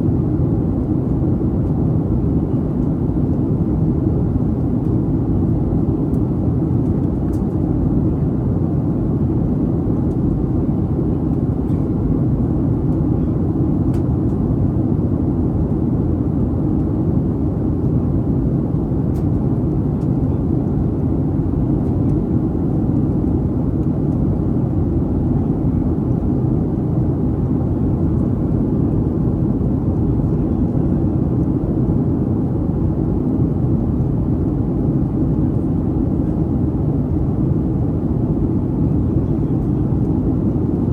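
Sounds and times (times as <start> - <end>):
jet engine low rumble: 0.0 - 40.9.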